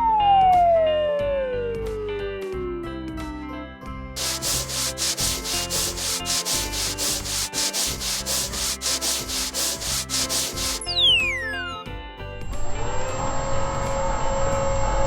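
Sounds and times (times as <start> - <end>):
rapid rhythmic scrubbing: 4.2 - 11.1.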